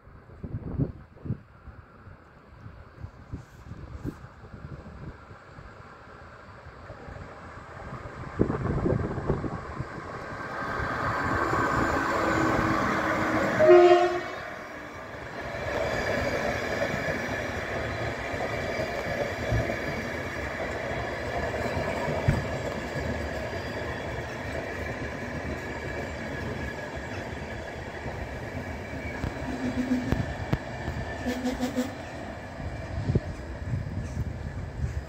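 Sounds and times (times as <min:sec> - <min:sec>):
train coaches rolling past: 0:00.2 - 0:35.0
train horn: 0:12.4 - 0:14.8, 0:29.5 - 0:30.2, 0:31.2 - 0:32.0.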